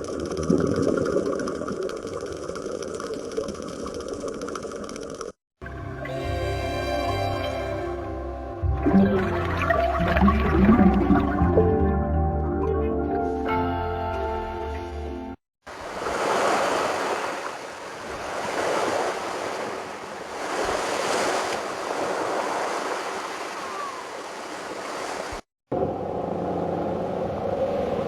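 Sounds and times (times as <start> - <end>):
music: 5.6 - 15.4
sea surf washing in: 15.7 - 25.4.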